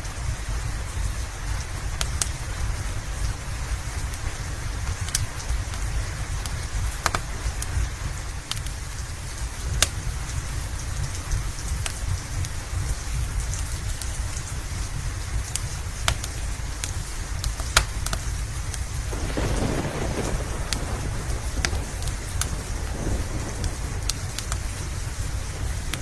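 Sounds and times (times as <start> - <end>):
steady rain hiss: 0.0 - 26.0
wood fire popping and crackling: 0.8 - 26.0.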